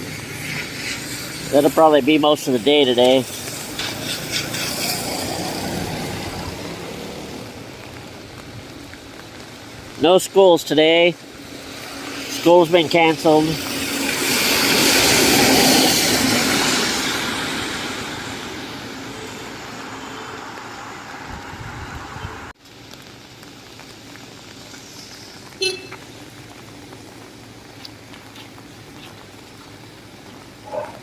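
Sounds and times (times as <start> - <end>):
tyres hissing on wet road: 0.0 - 31.0
wet street background: 0.0 - 31.0.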